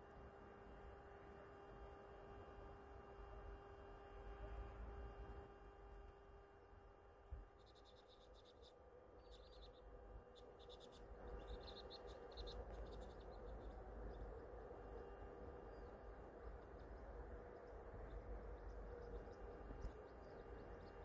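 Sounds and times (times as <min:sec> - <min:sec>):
steady low rumble: 0:04.2 - 0:21.0
small birds twittering: 0:07.2 - 0:21.0.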